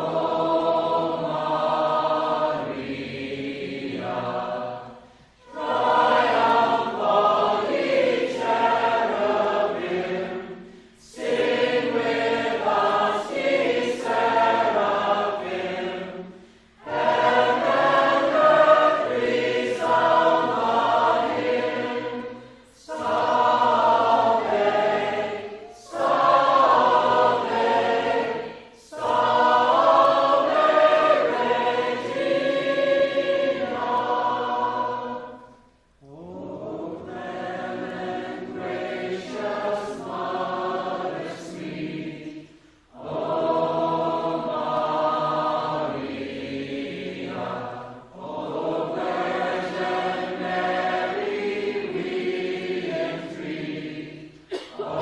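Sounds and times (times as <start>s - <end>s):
choir singing a hymn: 0.0s - 55.0s.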